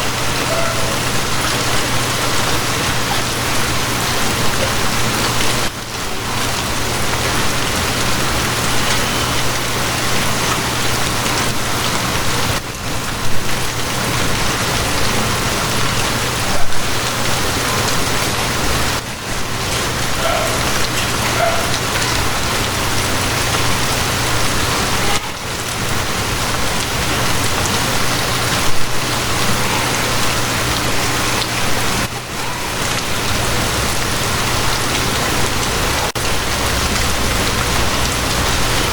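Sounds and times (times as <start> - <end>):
heavy rain falling: 0.0 - 38.9
loud splashes: 13.5 - 38.9.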